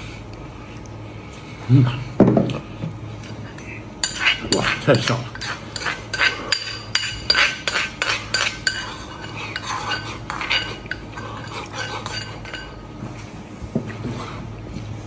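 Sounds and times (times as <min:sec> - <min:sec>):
metal spoon clinking in bowl: 0:04.0 - 0:12.8.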